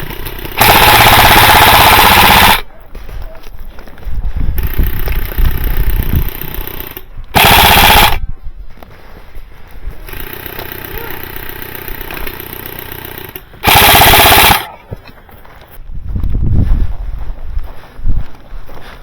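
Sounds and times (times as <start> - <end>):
airsoft gun full-auto fire: 0.0 - 2.7, 4.6 - 8.2, 10.1 - 14.8.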